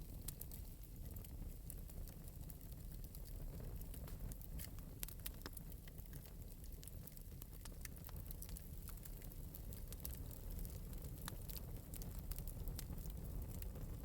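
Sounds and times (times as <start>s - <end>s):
low steady fire rumble: 0.0s - 14.0s
wood fire crackling: 0.0s - 14.0s.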